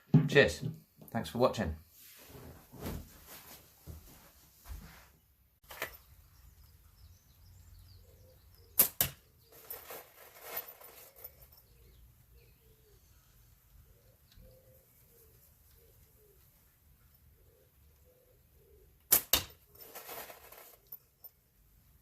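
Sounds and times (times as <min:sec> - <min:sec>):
slingshot snap: 0:19.1 - 0:19.6.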